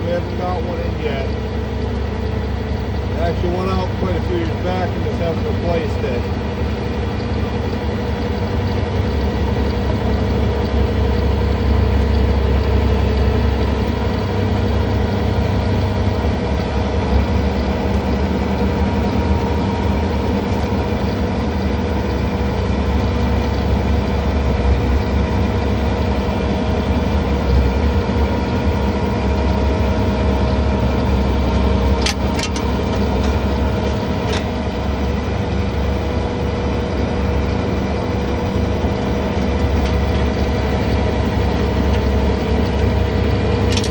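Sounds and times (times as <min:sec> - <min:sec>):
diesel engine running: 0:00.0 - 0:43.9
sharp clicks: 0:31.8 - 0:34.6, 0:43.6 - 0:43.9.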